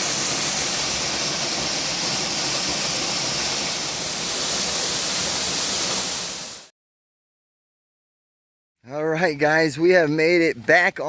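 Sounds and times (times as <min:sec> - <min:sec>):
waterfall rushing: 0:00.0 - 0:06.7.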